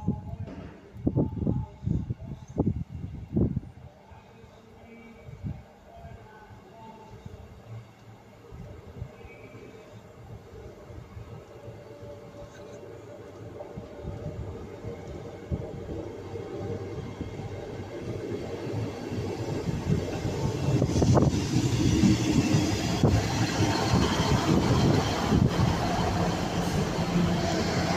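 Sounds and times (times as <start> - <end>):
diesel train rumble: 10.2 - 27.9.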